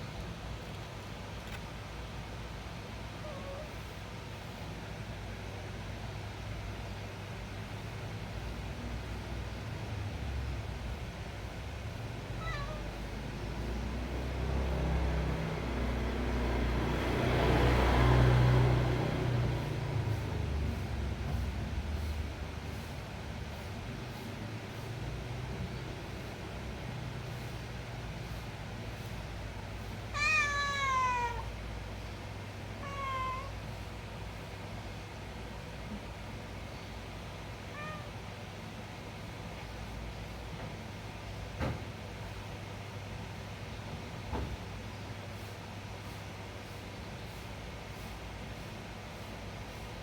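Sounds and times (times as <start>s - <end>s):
cat meowing: 3.2s - 3.9s, 12.3s - 13.2s, 30.1s - 31.6s, 32.8s - 33.8s, 37.7s - 38.2s.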